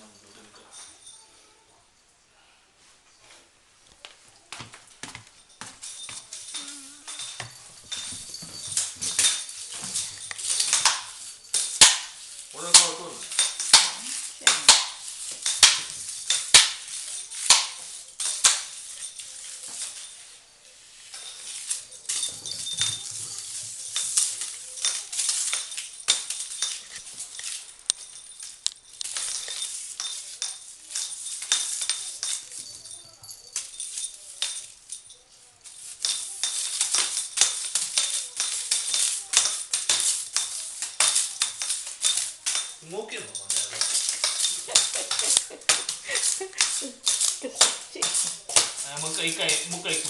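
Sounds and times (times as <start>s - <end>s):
kittens scratching and tapping: 35.6s - 50.0s.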